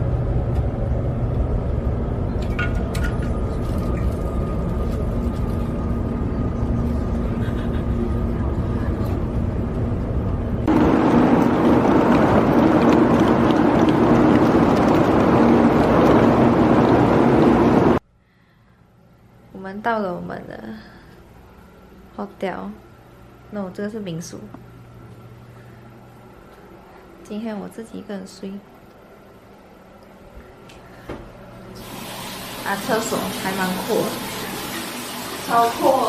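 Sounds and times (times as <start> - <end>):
train cabin rumble: 0.0 - 18.0
suitcase wheels rolling over tiles: 10.7 - 17.7.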